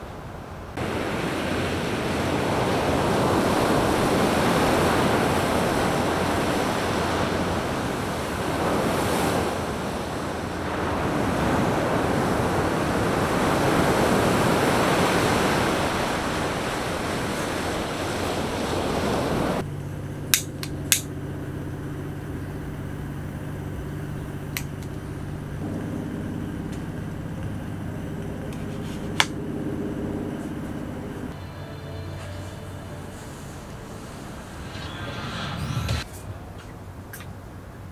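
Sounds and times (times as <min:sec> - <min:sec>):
surf breaking on a beach: 0:00.8 - 0:19.6.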